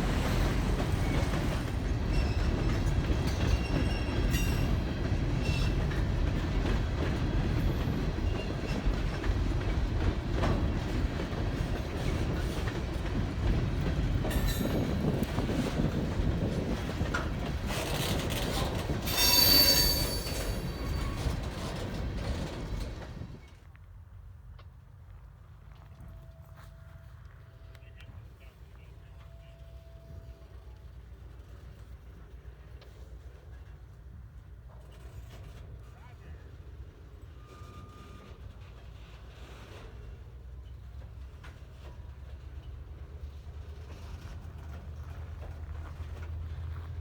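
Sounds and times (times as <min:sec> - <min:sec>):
train wheels rumbling on rails: 0:00.0 - 0:23.8, 0:26.2 - 0:47.0
high wheel squeal: 0:19.0 - 0:23.4.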